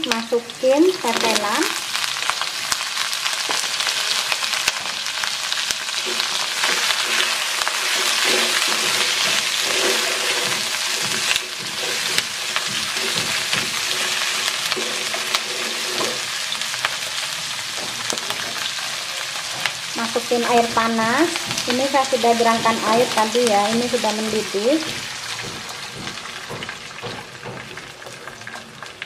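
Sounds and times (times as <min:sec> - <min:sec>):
meat sizzling in a wok: 0:00.0 - 0:29.0
spatula scraping a pan: 0:06.0 - 0:17.1.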